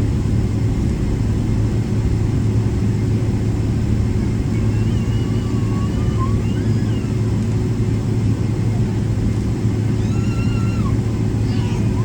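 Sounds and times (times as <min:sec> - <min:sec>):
aircraft cabin rumble: 0:00.0 - 0:12.0
faint voices: 0:09.8 - 0:12.0.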